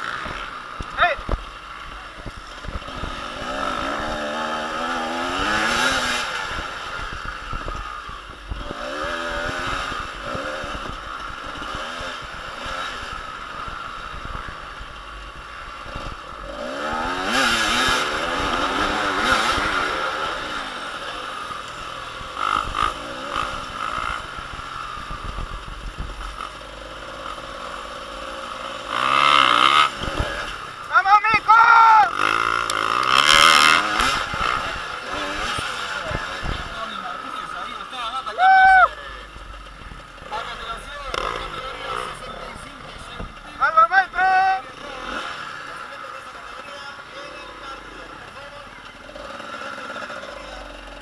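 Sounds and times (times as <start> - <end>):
motorcycle engines revving: 0.0 - 51.0.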